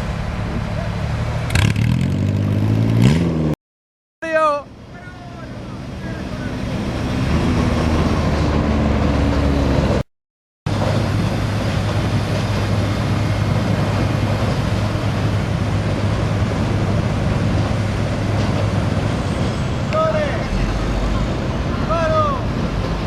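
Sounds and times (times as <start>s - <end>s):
heavy diesel engine under load: 4.7s - 10.0s.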